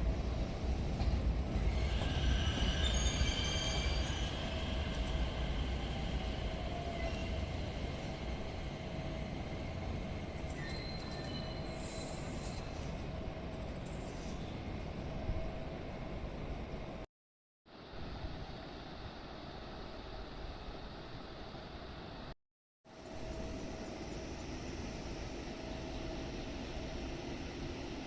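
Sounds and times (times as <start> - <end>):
train rumbling past: 0.0 - 17.0
train wheels squealing: 1.6 - 8.2, 9.2 - 15.0.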